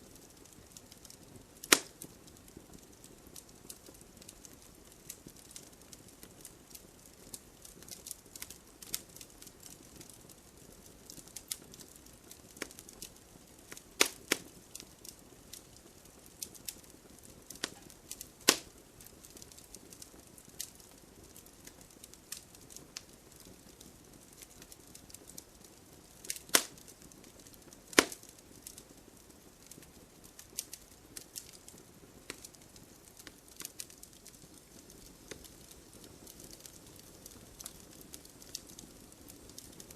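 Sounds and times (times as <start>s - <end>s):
wood fire crackling: 0.0s - 39.9s
splitting wood popping: 26.3s - 26.8s, 27.9s - 28.2s.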